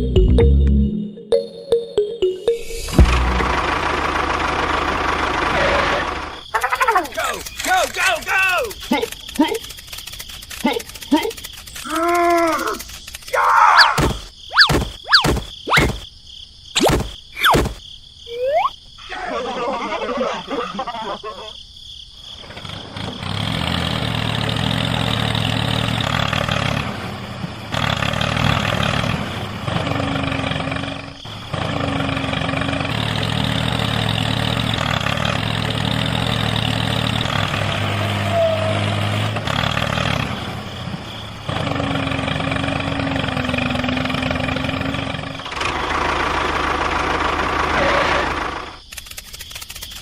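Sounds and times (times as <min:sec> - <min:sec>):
engine running: 0:02.5 - 0:06.4, 0:22.6 - 0:38.3, 0:38.9 - 0:48.8.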